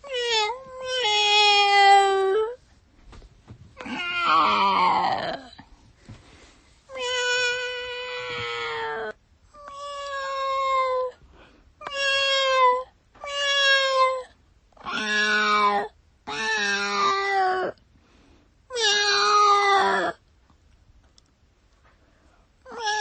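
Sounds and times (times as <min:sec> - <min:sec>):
cat meowing: 0:00.0 - 0:02.6, 0:03.8 - 0:05.6, 0:06.9 - 0:11.1, 0:11.8 - 0:17.8, 0:18.7 - 0:20.2, 0:22.7 - 0:23.0.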